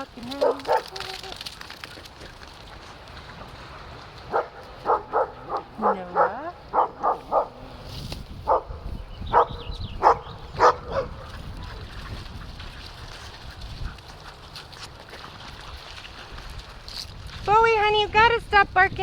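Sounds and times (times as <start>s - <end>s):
dog barking: 0.4s - 1.0s, 4.3s - 7.7s, 8.5s - 11.8s.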